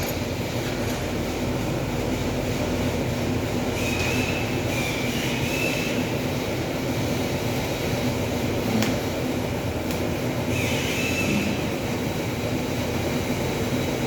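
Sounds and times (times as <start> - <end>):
machinery rumble: 5.4 - 14.0.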